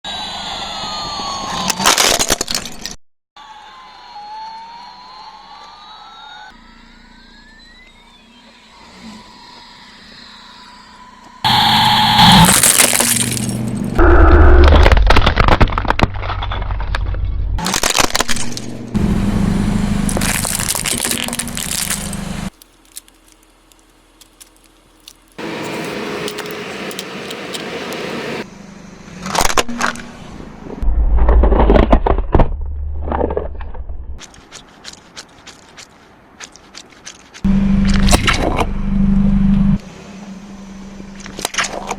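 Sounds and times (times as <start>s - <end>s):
car rumble: 11.4s - 34.2s, 37.5s - 41.9s
tyres crushing crunchy objects: 12.2s - 19.2s, 20.0s - 28.4s, 31.1s - 38.6s.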